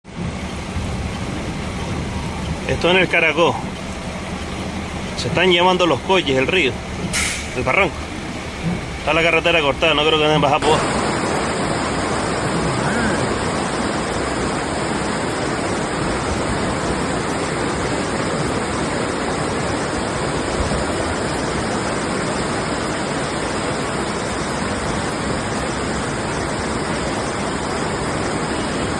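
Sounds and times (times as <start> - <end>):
flood water rushing: 0.4 - 12.4.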